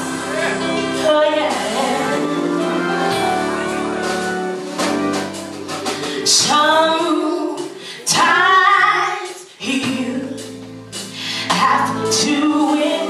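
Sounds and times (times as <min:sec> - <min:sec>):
band with low keyboard tones: 0:00.0 - 0:13.0
woman singing gospel: 0:00.9 - 0:04.2, 0:06.2 - 0:13.0.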